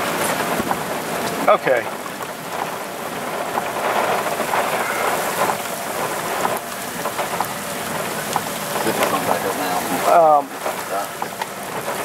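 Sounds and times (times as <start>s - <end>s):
heavy rain pattering: 0.0s - 12.0s
drops ticking on a surface: 6.4s - 9.3s.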